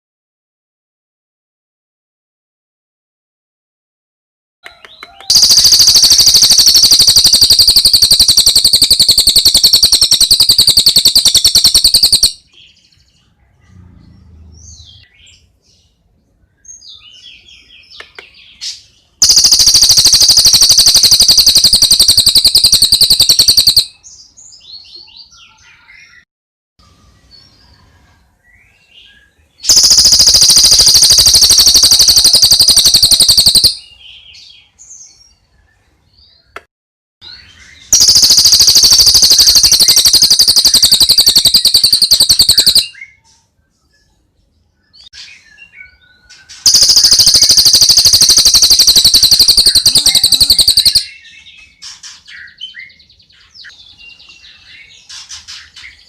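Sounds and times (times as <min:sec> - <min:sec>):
high-pitched bird trill: 0:04.6 - 0:12.6, 0:19.2 - 0:26.2, 0:29.6 - 0:34.5, 0:37.2 - 0:43.2, 0:44.9 - 0:55.2.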